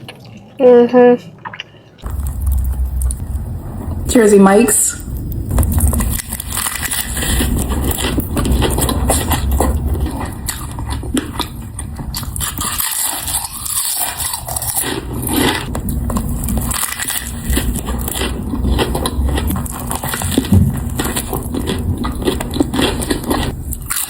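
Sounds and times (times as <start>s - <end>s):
chewing and crunching food: 5.5s - 24.0s.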